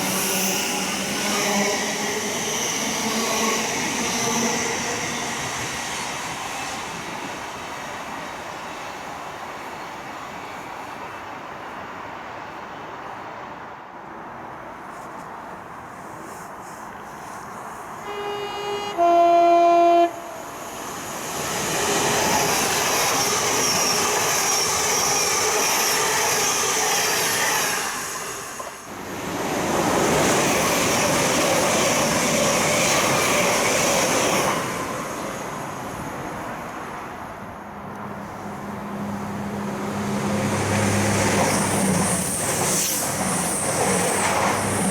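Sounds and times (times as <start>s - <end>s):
train rushing past: 0.0s - 14.4s, 16.0s - 44.9s
two-tone train horn: 18.0s - 20.5s.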